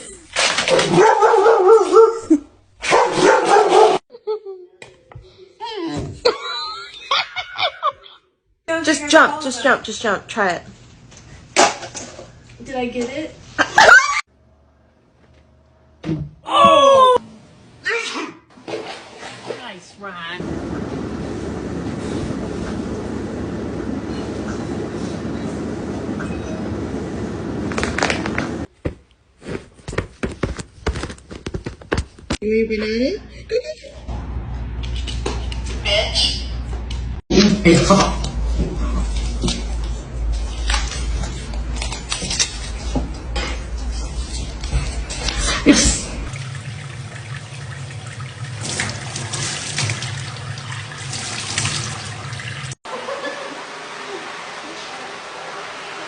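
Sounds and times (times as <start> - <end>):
water running into sink: 45.1 - 56.0.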